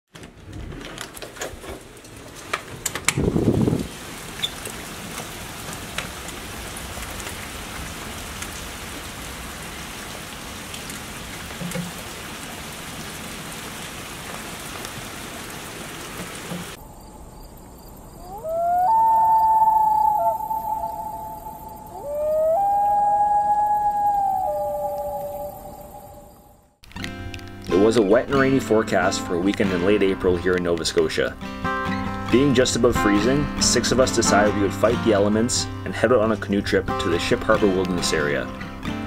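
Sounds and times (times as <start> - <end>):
steady rain falling: 0.2 - 39.0
wailing tone: 18.1 - 26.8.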